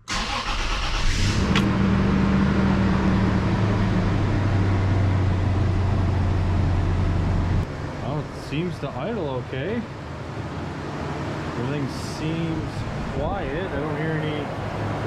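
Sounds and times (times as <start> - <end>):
car engine starting and idling: 0.0 - 9.0.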